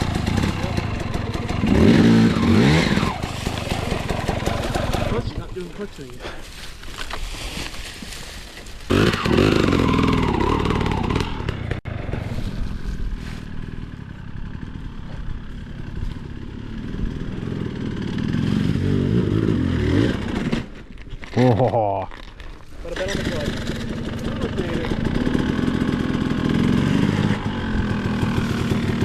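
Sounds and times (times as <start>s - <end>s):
dirt bike engine revving: 0.0s - 5.7s, 8.9s - 11.9s, 13.7s - 20.8s, 22.9s - 29.0s.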